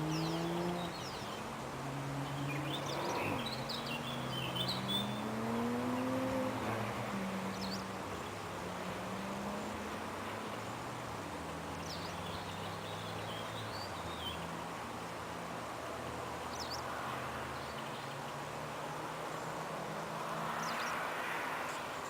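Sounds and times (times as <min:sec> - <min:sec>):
bird chirps: 0:02.3 - 0:05.3.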